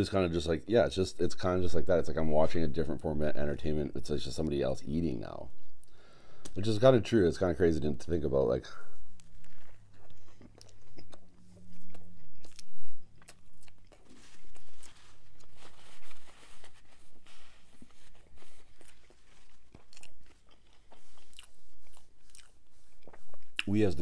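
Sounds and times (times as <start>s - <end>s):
crunching and chewing: 8.9s - 23.9s
biting into a bun: 9.2s - 15.6s, 16.7s - 23.7s.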